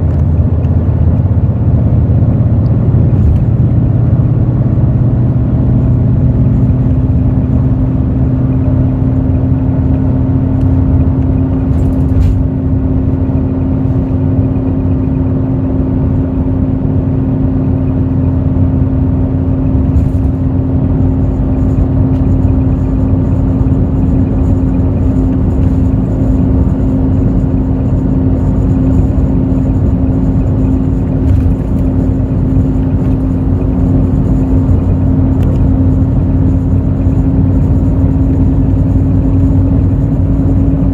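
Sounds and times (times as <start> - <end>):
bus diesel engine running: 0.0 - 40.9
low road rumble: 0.0 - 40.9
steady whine: 0.0 - 40.9.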